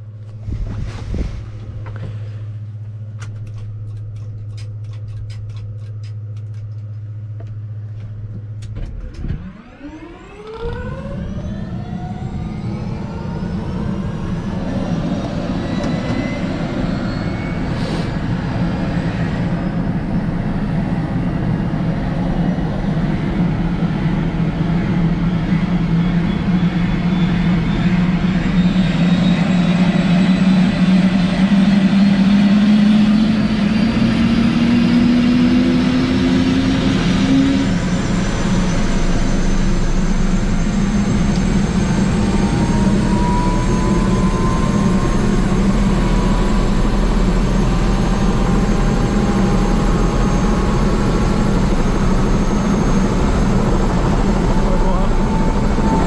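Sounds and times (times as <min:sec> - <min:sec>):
low hum: 0:00.0 - 0:56.0
turbine engine whine: 0:00.0 - 0:56.0
scattered clicks: 0:03.2 - 0:07.6
helicopter rotor noise: 0:09.4 - 0:56.0.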